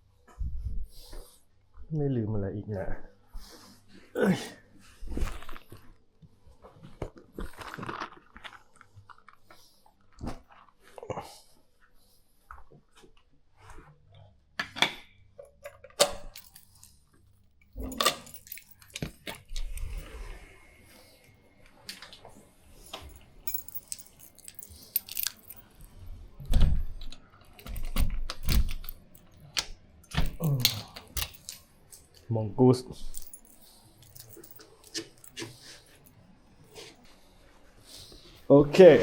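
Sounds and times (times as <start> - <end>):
gear handling clicks and rustles: 15.4 - 20.1, 22.8 - 26.0, 27.0 - 32.3, 33.0 - 36.2
keys jangling: 15.6 - 17.0, 17.6 - 20.2, 22.8 - 26.0, 27.4 - 32.2, 33.0 - 36.2.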